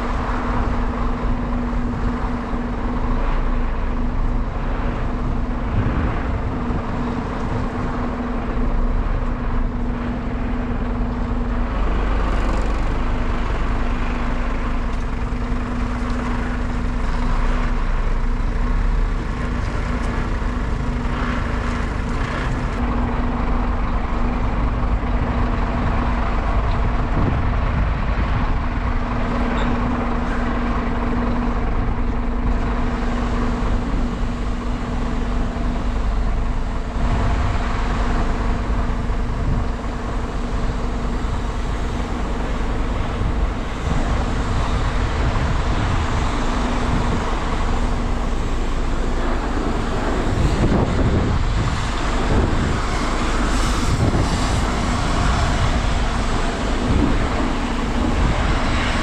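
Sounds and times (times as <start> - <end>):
engine running with low hum: 0.0 - 59.0.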